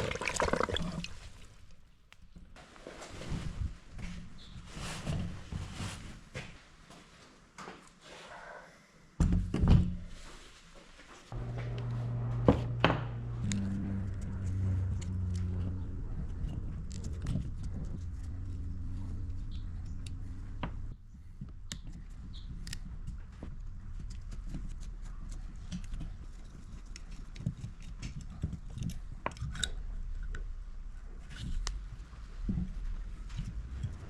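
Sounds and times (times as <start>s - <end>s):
steady low hum: 11.3s - 22.2s.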